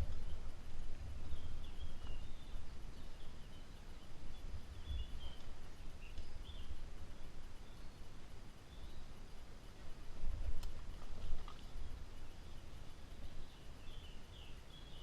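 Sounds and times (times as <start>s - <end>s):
low microphone rumble: 0.0s - 8.2s
birds chirping: 0.0s - 9.4s, 11.5s - 15.0s.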